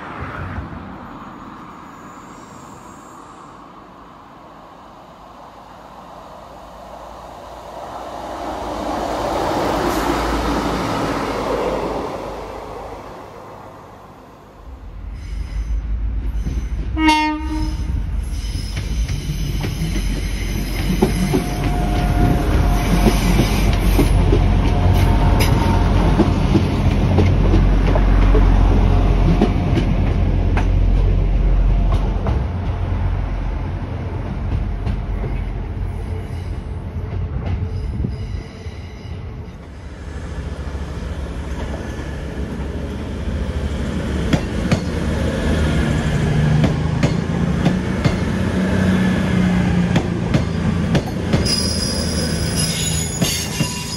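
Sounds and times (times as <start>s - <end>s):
diesel train engines: 0.0s - 53.9s
train horn blast: 17.0s - 17.9s, 21.3s - 23.5s, 24.2s - 26.2s
wheels squealing: 51.4s - 53.9s.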